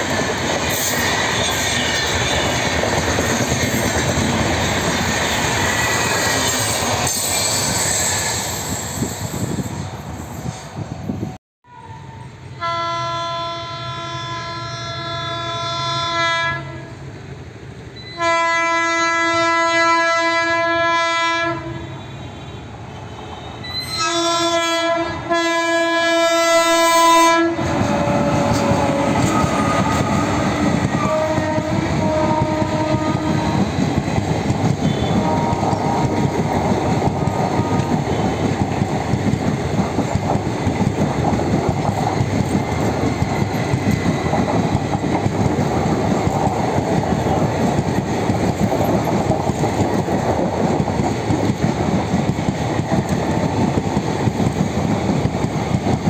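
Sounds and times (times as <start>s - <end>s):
train rumbling past: 0.0s - 56.0s
locomotive horn blasts: 11.6s - 17.0s, 18.0s - 33.7s, 34.8s - 36.2s, 37.5s - 38.4s
wheels clacking over rail joints: 27.6s - 56.0s.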